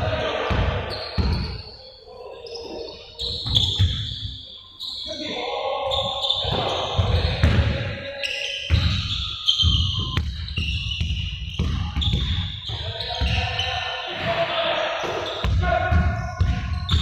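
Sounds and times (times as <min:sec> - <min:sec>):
voices echoing in a hall: 0:00.0 - 0:17.0
balls bouncing on hard court: 0:00.4 - 0:01.6, 0:03.2 - 0:04.1, 0:06.4 - 0:07.9, 0:08.7 - 0:13.6, 0:15.0 - 0:17.0
short high squeaks: 0:02.4 - 0:07.3.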